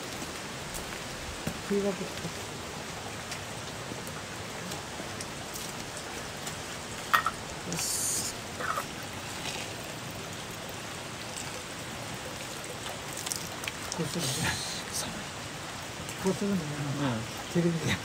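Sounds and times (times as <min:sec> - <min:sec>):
water splashing into stone basin: 0:04.6 - 0:15.0.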